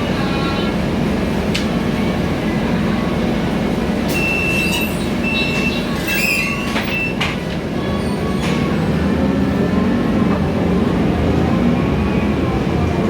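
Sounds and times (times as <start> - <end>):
bus engine and road rumble: 0.0 - 13.0
high squeal: 4.1 - 7.2.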